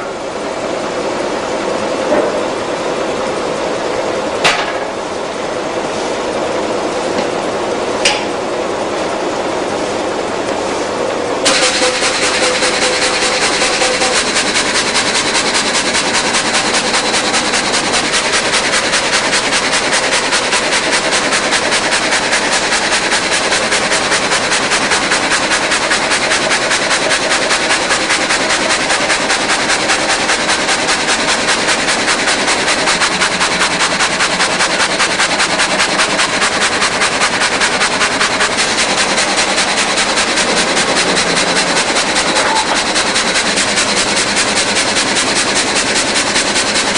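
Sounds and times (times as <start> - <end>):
rip saw running: 11.4 - 46.9.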